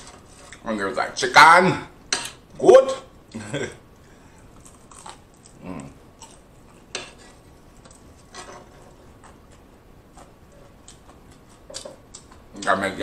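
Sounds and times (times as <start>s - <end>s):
chewing crispy fried chicken: 4.5s - 6.9s.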